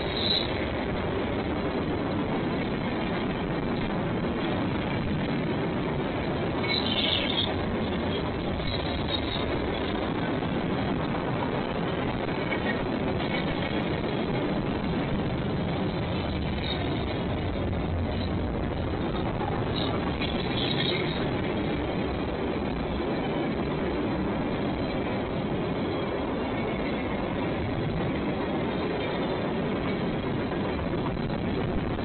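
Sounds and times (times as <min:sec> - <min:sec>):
train wheels rumbling on rail: 0:00.0 - 0:32.0
faint high squeals: 0:06.6 - 0:07.5.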